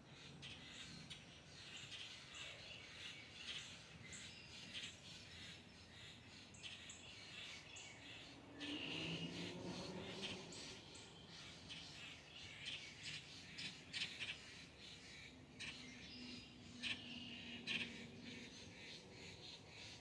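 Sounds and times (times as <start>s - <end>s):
birds chirping and squawking: 7.7s - 14.8s.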